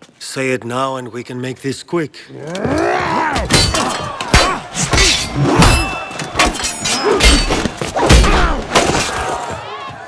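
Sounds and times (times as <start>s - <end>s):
weapons clashing: 3.4s - 9.6s.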